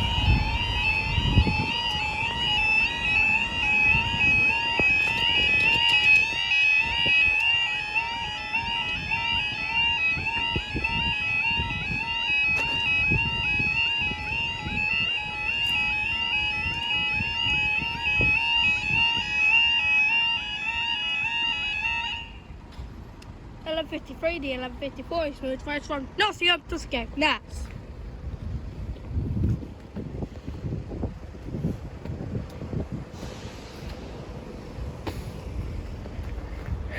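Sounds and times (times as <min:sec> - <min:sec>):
warbling two-tone crossing alarm: 0:00.0 - 0:22.6
low uneven rumble: 0:22.3 - 0:36.9.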